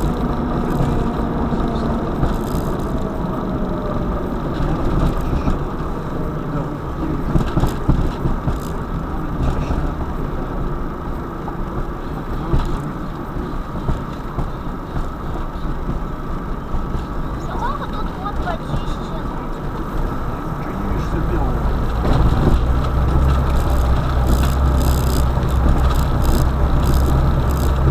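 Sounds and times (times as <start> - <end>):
car engine and road rumble: 0.0 - 27.9.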